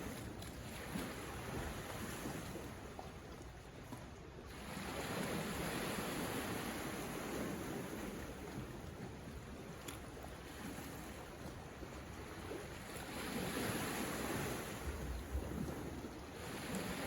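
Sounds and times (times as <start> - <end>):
ocean waves washing ashore: 0.0 - 17.0.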